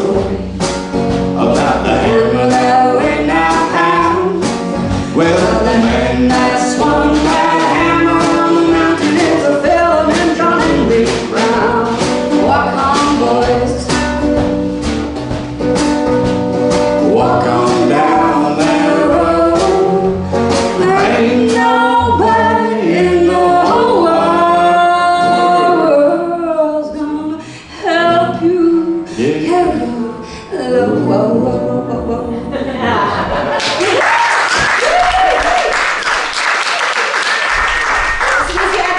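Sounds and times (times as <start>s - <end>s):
person singing: 0.0s - 0.5s, 1.4s - 14.0s, 17.0s - 33.0s
strummed guitar: 0.0s - 26.2s.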